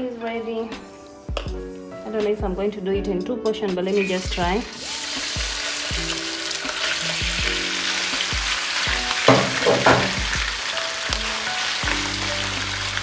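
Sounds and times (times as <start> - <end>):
meat sizzling in oil: 4.0 - 13.0.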